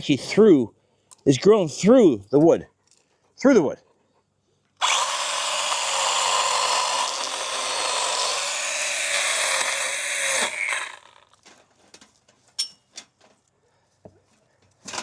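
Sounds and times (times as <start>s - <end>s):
chainsaw cutting wood: 4.8s - 11.5s.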